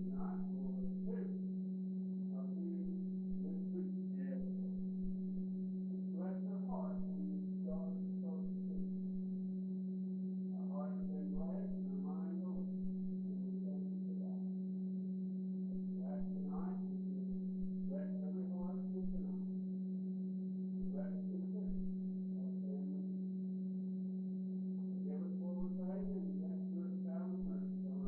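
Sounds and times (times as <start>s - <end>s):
faint murmur of people talking: 0.0s - 1.4s, 2.3s - 9.2s, 10.4s - 14.6s, 15.6s - 19.6s, 20.8s - 23.2s, 24.7s - 28.0s
low electrical hum: 0.0s - 28.0s.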